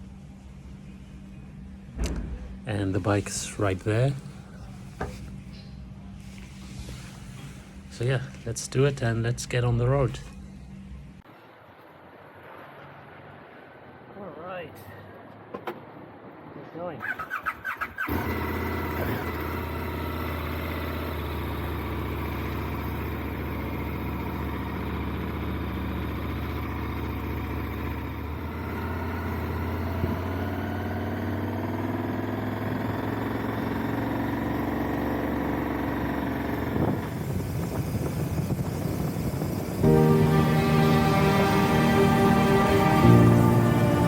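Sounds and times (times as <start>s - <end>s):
motorcycle engine idling and revving: 17.0s - 44.0s.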